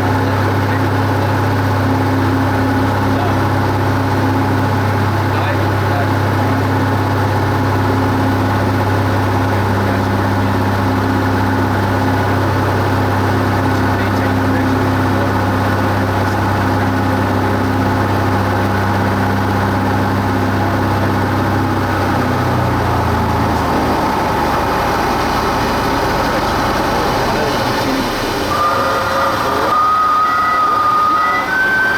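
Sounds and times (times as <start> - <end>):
propeller plane engine droning: 0.0 - 31.9.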